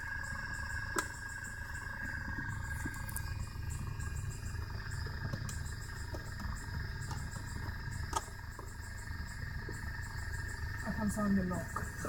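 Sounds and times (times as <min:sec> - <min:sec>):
electrical hum and whine: 0:00.0 - 0:12.0.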